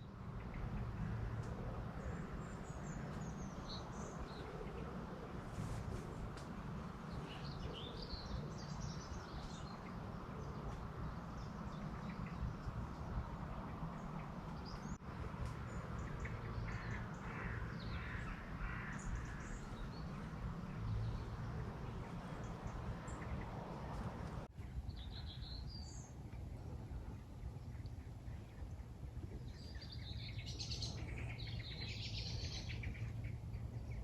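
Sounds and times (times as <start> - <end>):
birds calling: 0.0 - 24.5
low outdoor rumble: 0.0 - 34.0.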